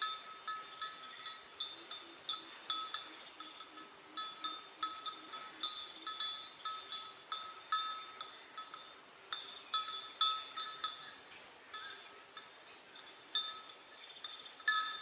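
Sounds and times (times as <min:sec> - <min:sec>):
small metal bell clinking: 0:13.3 - 0:15.0.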